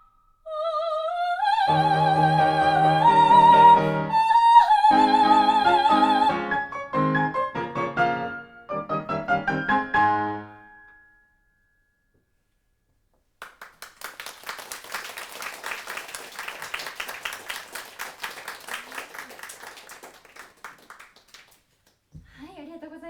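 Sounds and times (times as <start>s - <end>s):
soprano singing with piano: 0.5s - 6.8s
audience applauding: 13.4s - 21.9s.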